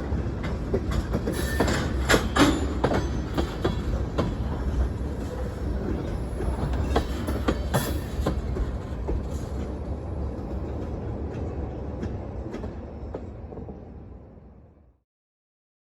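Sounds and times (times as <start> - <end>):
freight train rumbling past: 0.0 - 14.8
wheels clicking over rail joints: 0.4 - 9.8.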